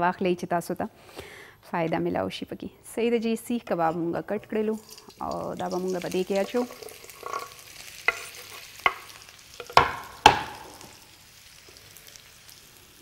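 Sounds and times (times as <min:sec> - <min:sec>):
oil frying sizzle: 0:04.4 - 0:13.0
sharp knocks against pan: 0:09.6 - 0:10.9.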